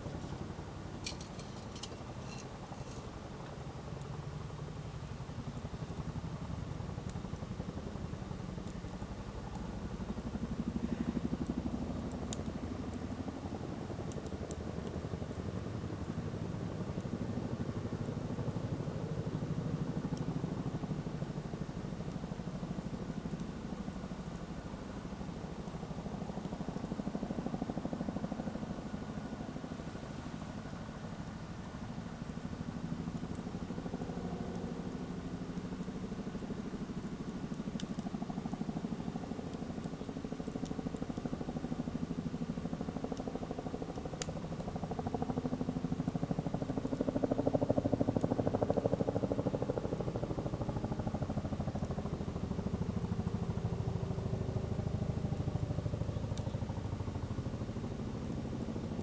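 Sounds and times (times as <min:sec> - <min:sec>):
wood crackling and popping: 0:00.0 - 0:03.6
campfire roaring: 0:00.0 - 0:59.0.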